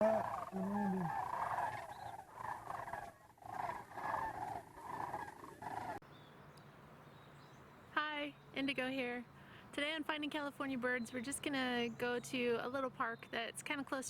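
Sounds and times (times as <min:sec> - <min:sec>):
pitched animal calls: 0:00.0 - 0:06.0.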